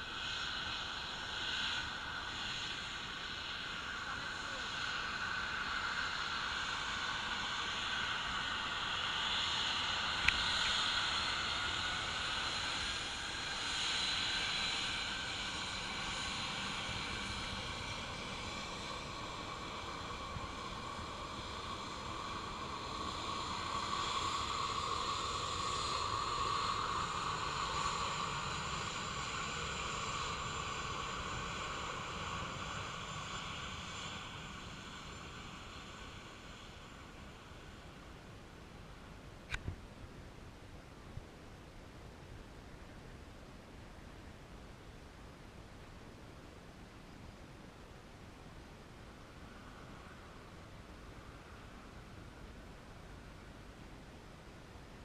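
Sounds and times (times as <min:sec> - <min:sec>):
sharp click: 0:39.5 - 0:39.8.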